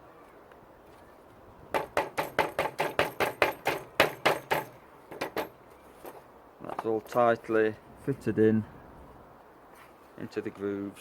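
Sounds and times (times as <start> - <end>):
hammer tapping wooden frame: 1.7 - 5.6.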